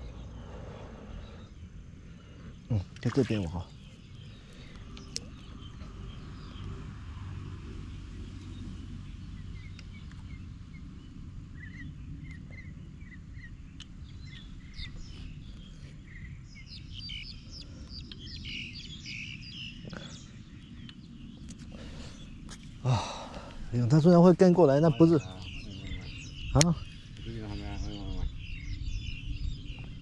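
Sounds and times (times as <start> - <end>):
low steady rumble: 0.0 - 3.0
small birds chirping: 0.0 - 30.0.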